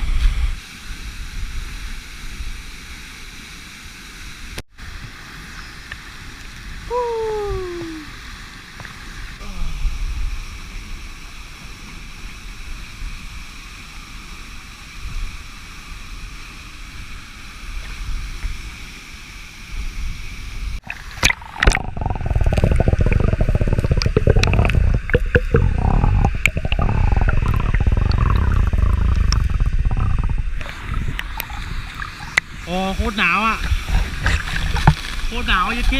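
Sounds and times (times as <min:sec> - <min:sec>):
water splashes: 0:20.8 - 0:35.9
waterfall rushing: 0:21.0 - 0:33.5.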